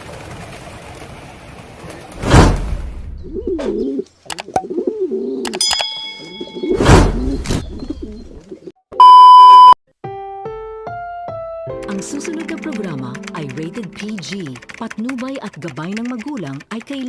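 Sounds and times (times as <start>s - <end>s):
short rushing noises: 2.1s - 3.1s
pigeons cooing: 3.2s - 5.6s
electronic beep: 9.0s - 9.8s.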